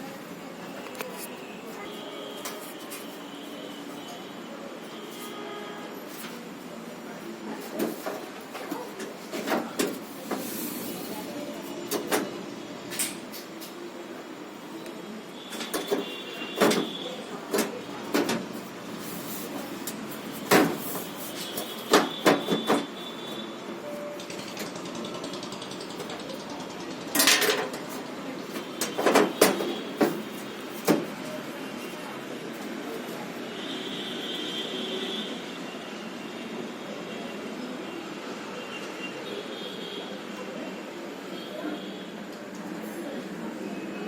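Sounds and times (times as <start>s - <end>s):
steady background noise: 0.0s - 44.0s
tools knocking and clicking: 24.2s - 27.9s.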